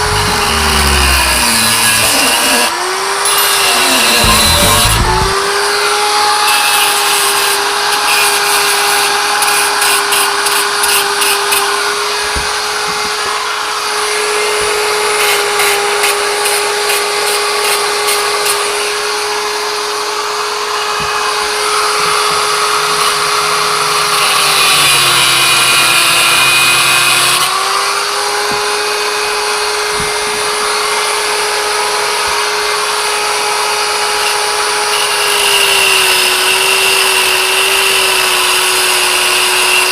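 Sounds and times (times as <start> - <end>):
grinding hiss cutting steel: 0.0 - 5.5
power tool motor whine: 0.0 - 39.9.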